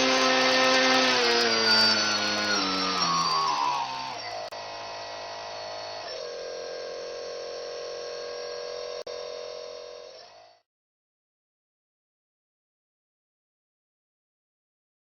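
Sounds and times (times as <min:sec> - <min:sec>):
electric model airplane motor whining: 0:00.0 - 0:10.6.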